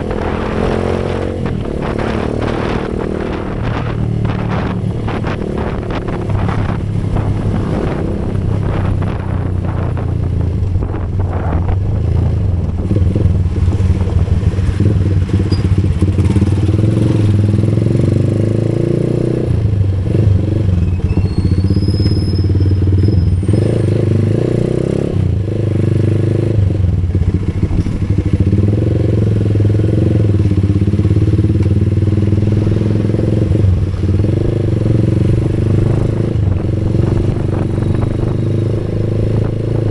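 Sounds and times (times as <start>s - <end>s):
vehicle engine running: 0.0s - 18.4s.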